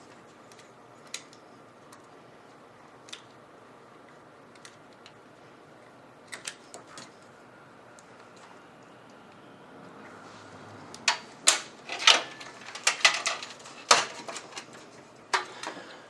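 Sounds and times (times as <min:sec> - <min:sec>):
computer parts clicking and tapping: 0:00.0 - 0:05.2, 0:06.2 - 0:07.3, 0:10.9 - 0:15.9.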